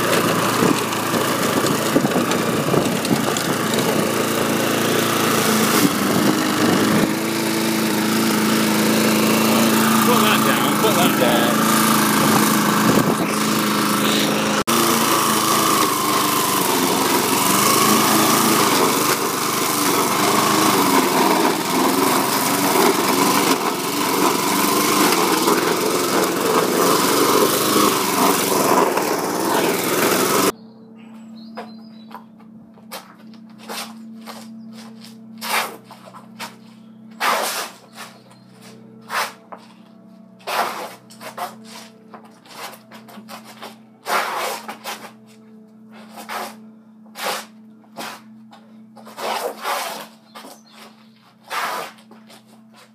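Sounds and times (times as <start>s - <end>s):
lawn mower engine running: 0.0s - 45.2s.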